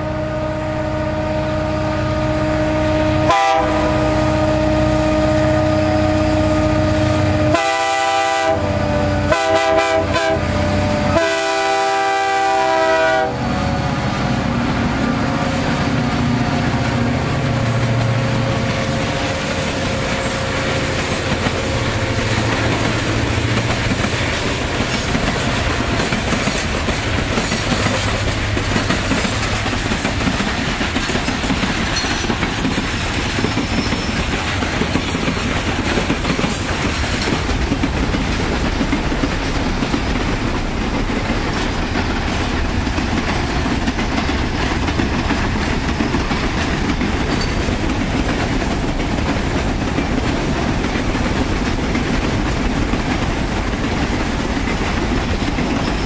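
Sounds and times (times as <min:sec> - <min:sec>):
steel wheels rumbling on rail: 0:00.0 - 0:56.0
clickety-clack over rail joints: 0:14.2 - 0:56.0.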